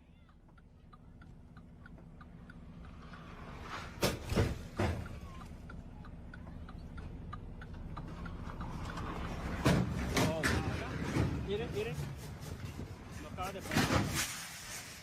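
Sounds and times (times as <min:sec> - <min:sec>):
faint regular ticking: 0:00.0 - 0:10.0
low engine hum: 0:00.0 - 0:13.9
vehicle rumble approaching: 0:00.0 - 0:15.0.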